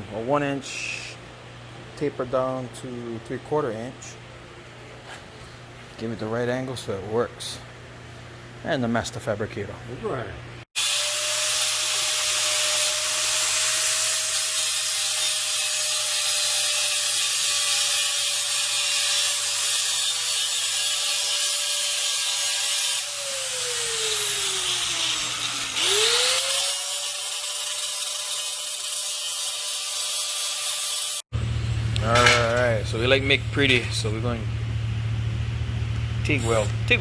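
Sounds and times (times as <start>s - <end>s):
grinder motor whine: 21.8s - 37.0s.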